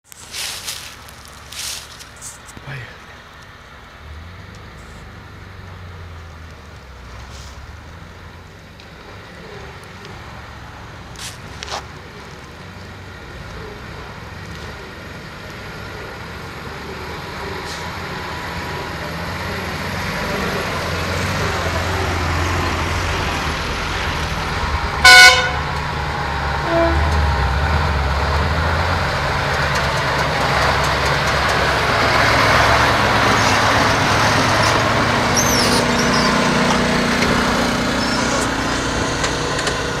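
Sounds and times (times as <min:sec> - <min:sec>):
vehicle running: 0:00.0 - 0:40.0
short horn toot: 0:25.0 - 0:25.7, 0:26.6 - 0:27.2.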